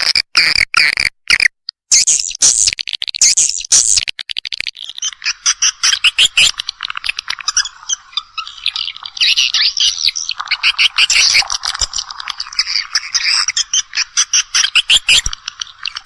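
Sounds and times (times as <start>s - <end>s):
swiftlets twittering: 5.0s - 16.0s.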